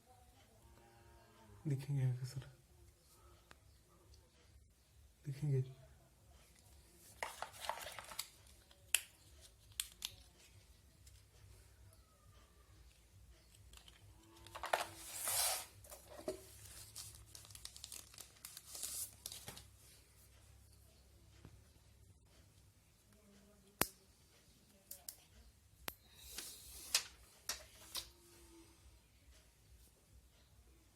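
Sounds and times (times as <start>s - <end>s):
packaging rustling and crinkling: 7.1s - 8.8s, 13.7s - 19.7s.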